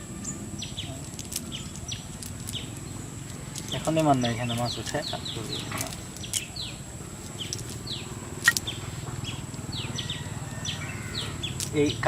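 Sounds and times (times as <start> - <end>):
bird chirping: 0.0 - 12.0
sharp clicks: 7.3 - 9.6.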